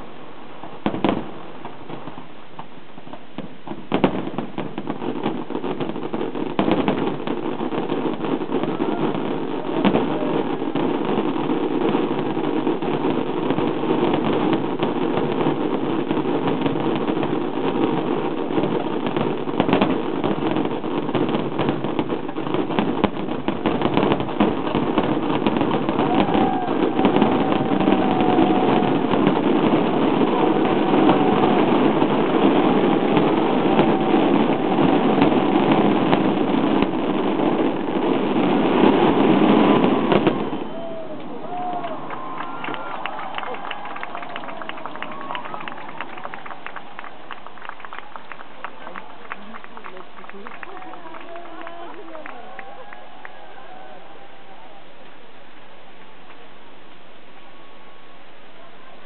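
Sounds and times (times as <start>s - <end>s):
fireworks whistling: 0.0s - 49.1s
fireworks bursting and crackling: 0.0s - 59.0s
crowd voices: 23.9s - 55.9s.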